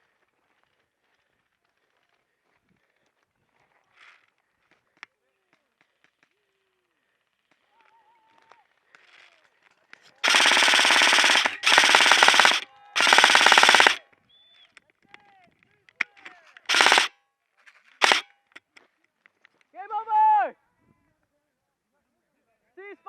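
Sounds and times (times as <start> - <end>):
airsoft gun firing bursts: 10.2 - 14.0, 16.7 - 17.1, 18.0 - 18.2.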